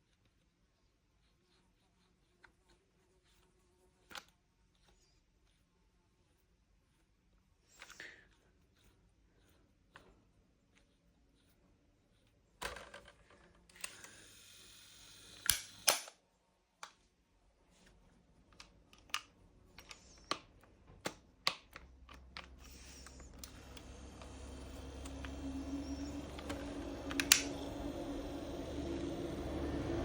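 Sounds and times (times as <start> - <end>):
plastic fan parts clicking: 18.5 - 30.0
low hum: 22.7 - 30.0.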